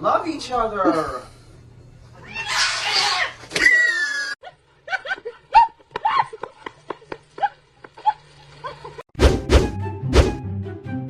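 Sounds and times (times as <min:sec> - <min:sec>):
pet animal calling: 0:02.2 - 0:04.4.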